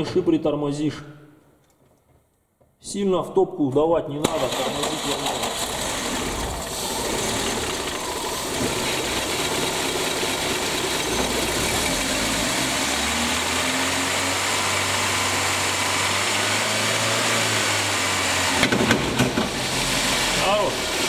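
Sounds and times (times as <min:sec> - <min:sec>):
car engine running: 0:04.4 - 0:21.0.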